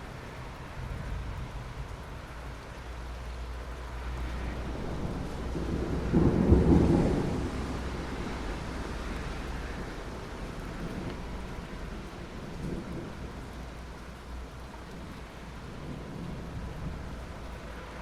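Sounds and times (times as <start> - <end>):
rain falling: 0.0 - 18.0
distant thunder rumble: 4.3 - 18.0.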